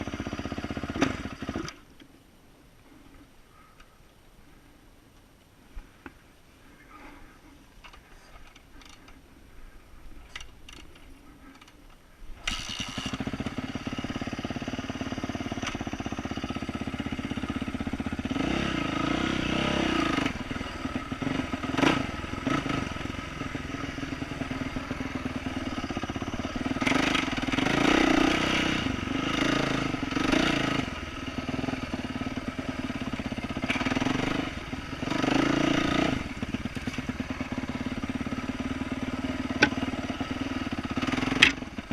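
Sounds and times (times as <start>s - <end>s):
dirt bike engine revving: 12.4s - 41.9s.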